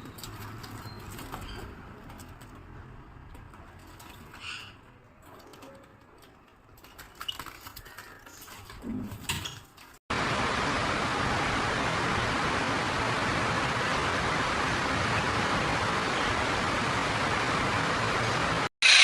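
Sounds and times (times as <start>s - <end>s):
pet birds chirping: 0.0s - 2.0s.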